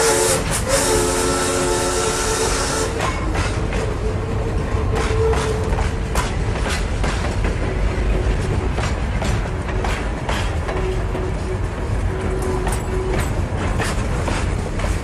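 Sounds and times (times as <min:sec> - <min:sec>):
train whistle chord: 0:00.0 - 0:03.2
train rumbling: 0:00.0 - 0:15.0
wheels clicking on track: 0:00.1 - 0:15.0.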